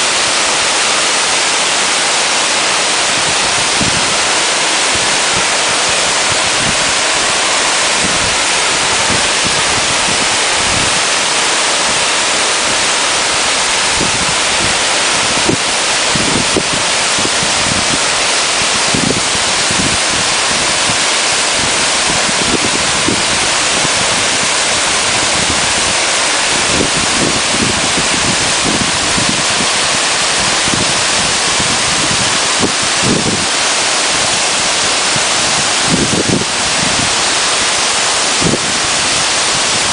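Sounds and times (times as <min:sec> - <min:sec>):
waterfall roaring: 0:00.0 - 0:39.9
wind buffeting microphone: 0:02.6 - 0:39.9.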